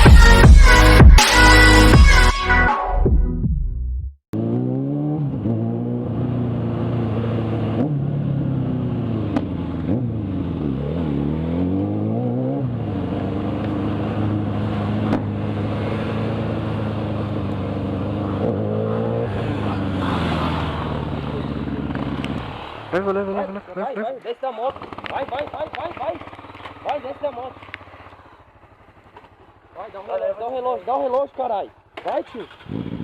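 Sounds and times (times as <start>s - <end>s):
electronic music: 0.0s - 3.6s
motorcycle engine revving: 4.3s - 33.0s.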